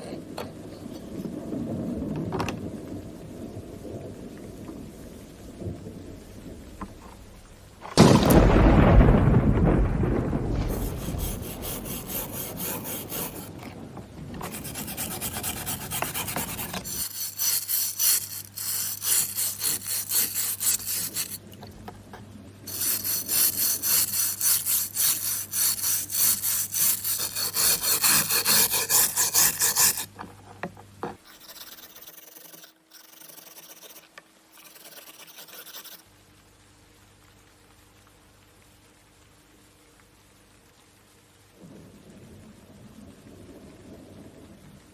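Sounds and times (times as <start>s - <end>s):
loud rumbling crash: 7.8s - 12.4s
scraping strokes on a knife blade: 10.7s - 13.7s, 14.4s - 21.4s, 22.7s - 36.0s.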